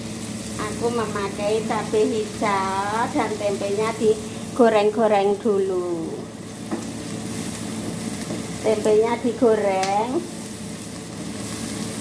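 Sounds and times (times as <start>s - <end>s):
food frying in hot oil: 0.0s - 12.0s
woman's voice: 0.6s - 6.3s, 8.6s - 10.3s.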